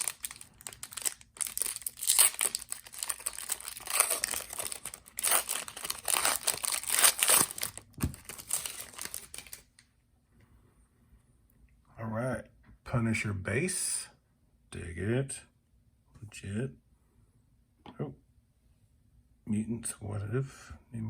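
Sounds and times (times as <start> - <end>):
plastic wrapping crinkling and tearing: 0.0 - 9.8.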